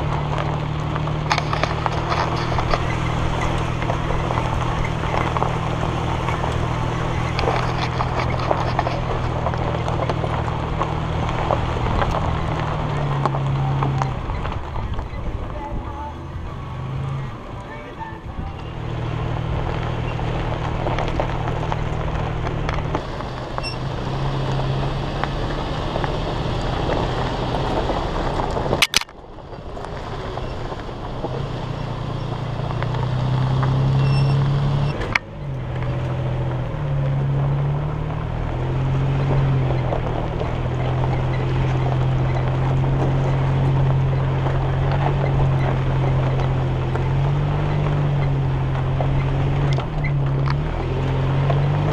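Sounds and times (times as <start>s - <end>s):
truck engine at low revs: 0.0s - 51.9s
wind and tyre noise: 0.0s - 51.9s
sharp clicks: 28.8s - 29.2s.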